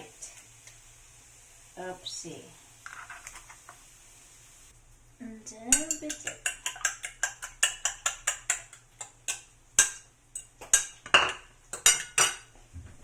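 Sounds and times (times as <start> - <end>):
utensil clattering against a pan: 5.7 - 12.5.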